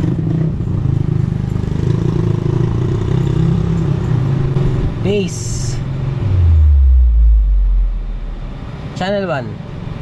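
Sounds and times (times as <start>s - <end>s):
low engine-like rumble: 5.4s - 9.4s.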